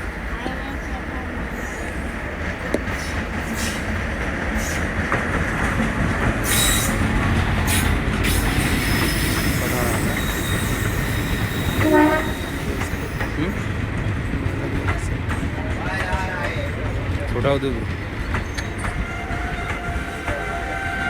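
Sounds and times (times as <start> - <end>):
train rumbling: 0.0 - 21.0
train wheels squealing: 6.4 - 13.5, 17.9 - 21.0
train horn blast: 9.6 - 12.8, 19.0 - 21.0.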